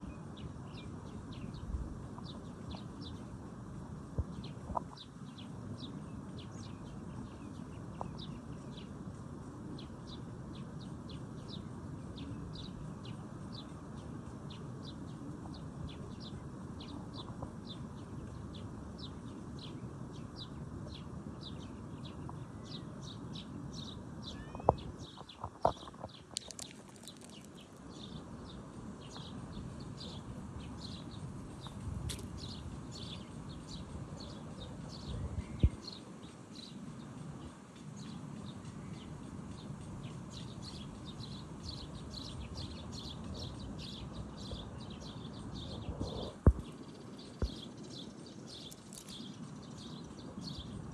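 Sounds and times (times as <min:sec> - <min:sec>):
birds chirping: 0:04.2 - 0:50.9.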